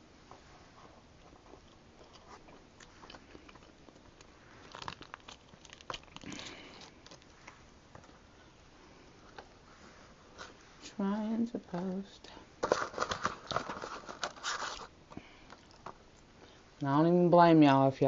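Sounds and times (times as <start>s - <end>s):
person chewing and crunching: 1.0s - 7.6s, 14.7s - 16.0s.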